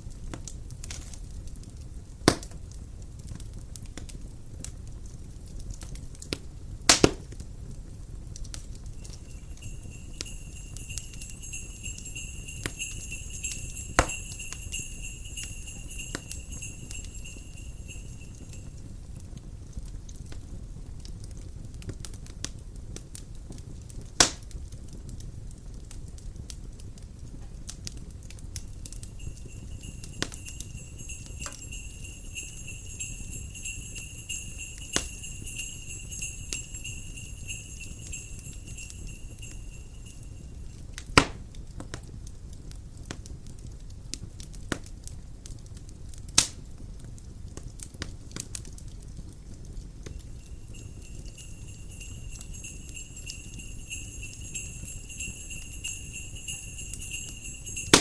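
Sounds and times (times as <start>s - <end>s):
wood fire crackling: 0.0s - 58.0s
loud fire pops: 2.2s - 2.6s
sleigh bells jingling: 8.8s - 19.1s, 28.6s - 40.9s, 50.0s - 58.0s
low wind rumble: 8.9s - 18.8s, 28.6s - 40.7s.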